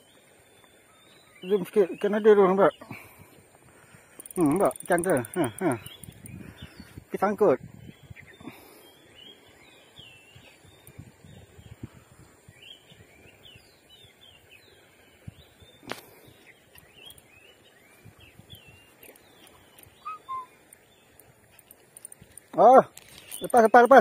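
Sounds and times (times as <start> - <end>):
faint outdoor background noise: 0.0 - 24.0
small birds chirping: 0.0 - 24.0.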